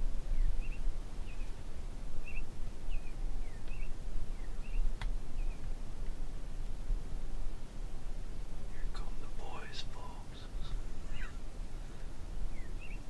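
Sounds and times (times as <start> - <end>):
small songbird chirping: 0.0 - 5.8, 8.7 - 13.0
steady low rumble: 0.0 - 13.0.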